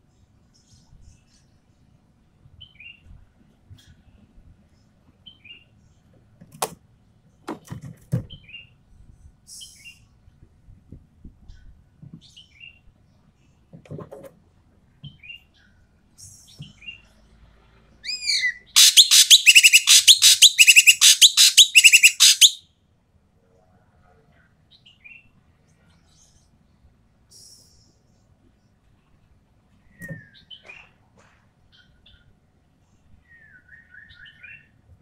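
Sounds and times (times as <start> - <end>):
bird chirps: 18.0 - 22.6
bird rising notes: 18.1 - 22.6
harsh rapid bird calls: 18.1 - 22.6.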